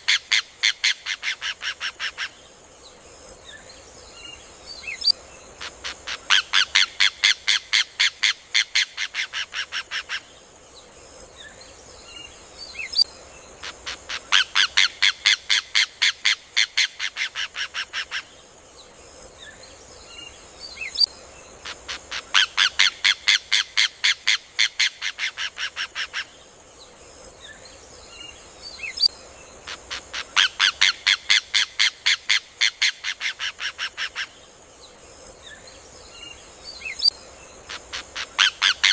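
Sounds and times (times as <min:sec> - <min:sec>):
steady high hiss: 0:00.0 - 0:38.9.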